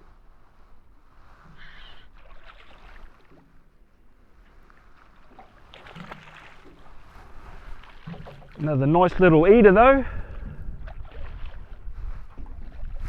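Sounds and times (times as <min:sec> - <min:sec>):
water slapping boat hull: 0:00.0 - 0:13.0
wind rumbling on microphone: 0:06.0 - 0:13.0.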